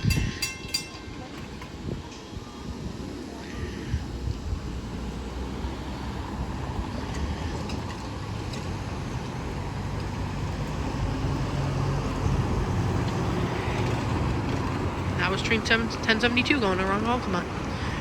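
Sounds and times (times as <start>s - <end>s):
low vehicle rumble: 1.7s - 18.0s.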